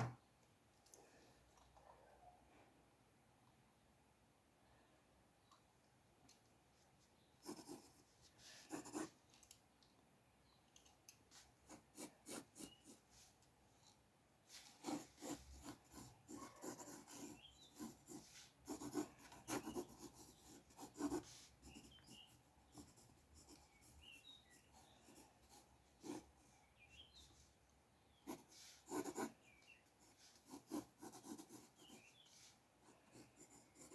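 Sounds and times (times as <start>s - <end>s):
pencil sketching on paper: 7.4s - 9.2s, 11.3s - 13.4s, 14.5s - 26.3s, 28.2s - 33.9s.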